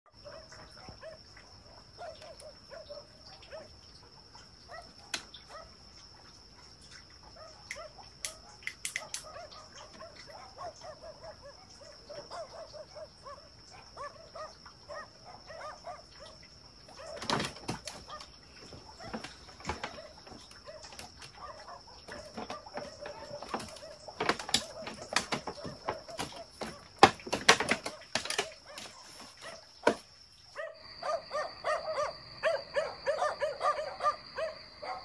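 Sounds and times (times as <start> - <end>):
sharp clicks or knocks: 8.2 - 9.3.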